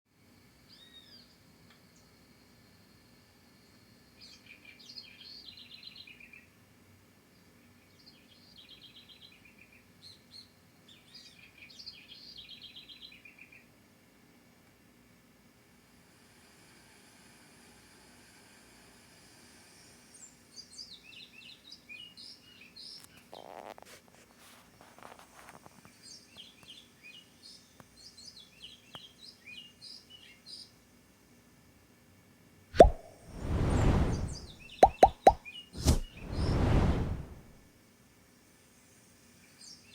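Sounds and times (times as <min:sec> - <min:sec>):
songbird chirping: 0:32.8 - 0:36.5.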